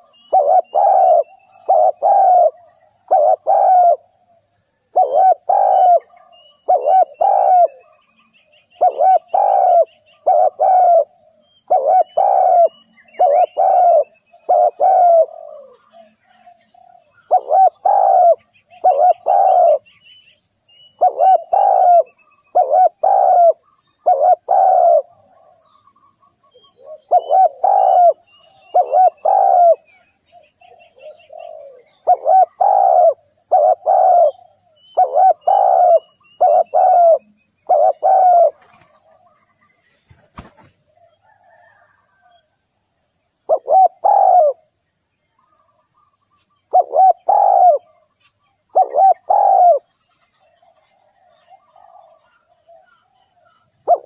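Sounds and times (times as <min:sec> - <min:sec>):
dove cooing: 0:00.0 - 0:19.8, 0:21.0 - 0:25.8, 0:26.4 - 0:42.4, 0:43.5 - 0:44.7, 0:46.7 - 0:48.1, 0:48.7 - 0:49.9, 0:50.5 - 0:54.0
faint small bird chirps: 0:00.0 - 0:42.6, 0:43.4 - 0:54.0.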